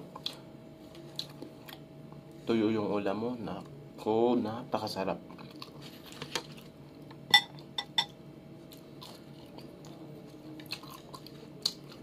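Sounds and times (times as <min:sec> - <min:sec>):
man chewing: 0:00.0 - 0:02.4, 0:05.3 - 0:07.7, 0:08.6 - 0:12.0.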